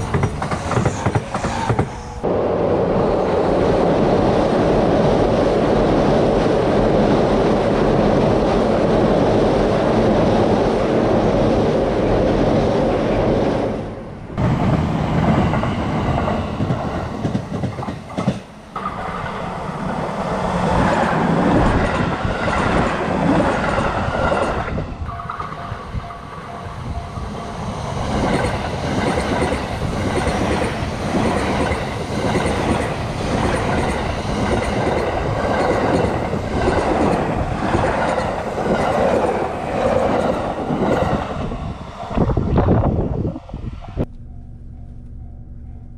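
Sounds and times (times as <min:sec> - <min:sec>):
train wheels clattering over rail joints: 0:00.0 - 0:02.0, 0:14.7 - 0:19.4.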